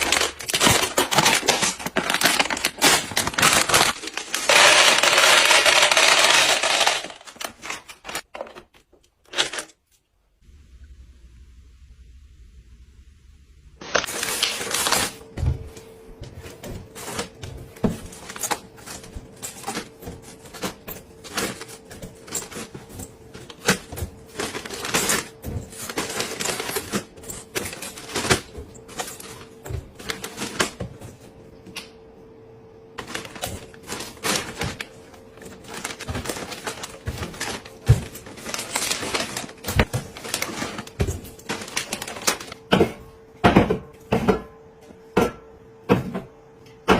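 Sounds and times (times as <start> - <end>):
household items clicking and clattering: 0.0 - 9.9, 16.3 - 31.2, 33.0 - 44.4
faint steady hum: 9.9 - 46.9.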